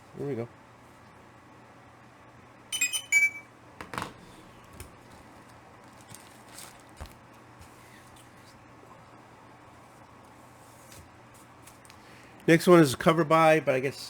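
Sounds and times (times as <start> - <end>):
ringing high notes: 2.8 - 3.4
comic books rustling: 4.9 - 8.2.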